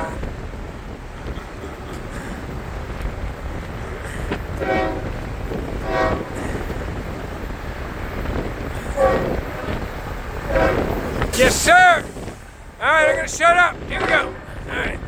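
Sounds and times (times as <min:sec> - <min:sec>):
train rumbling: 0:00.0 - 0:15.0
wind on microphone: 0:00.0 - 0:15.0
locomotive air horn blasts: 0:04.6 - 0:05.2, 0:05.8 - 0:06.4, 0:09.0 - 0:09.4, 0:10.4 - 0:12.3, 0:13.0 - 0:15.0.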